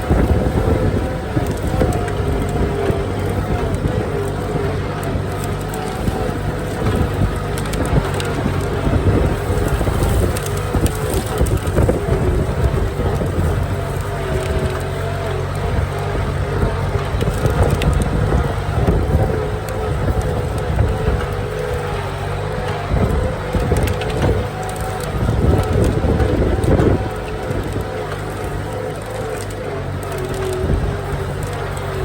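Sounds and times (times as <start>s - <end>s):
rattling and clatter of implement: 0.0s - 32.0s
tractor diesel engine under load: 0.0s - 32.0s.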